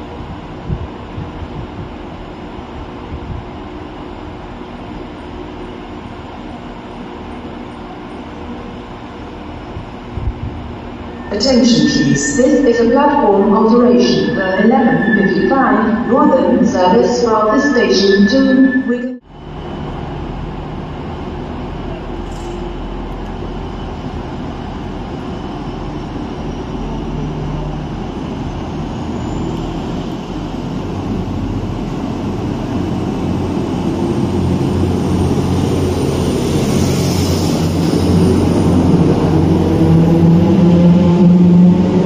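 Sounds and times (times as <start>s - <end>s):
faint high whine: 11.0s - 31.9s
train engine running: 19.3s - 42.0s.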